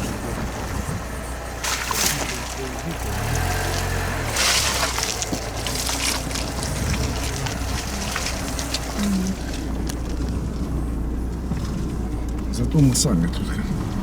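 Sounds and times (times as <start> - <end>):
tyres crackling and knocking: 0.0 - 13.1
car engine and road rumble: 0.0 - 14.0.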